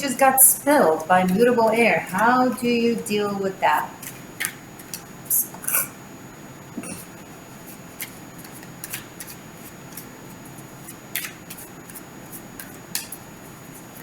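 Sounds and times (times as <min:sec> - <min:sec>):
cards being shuffled: 0:08.0 - 0:13.2.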